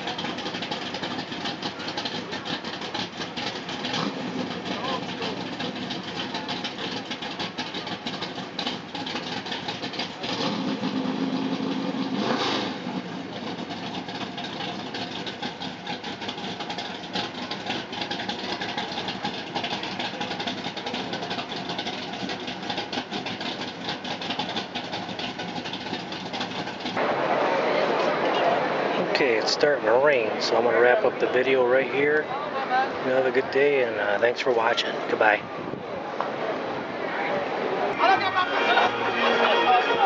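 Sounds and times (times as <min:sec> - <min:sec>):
outdoor crackle: 0:00.0 - 0:29.6
vehicle engine running: 0:00.0 - 0:40.0.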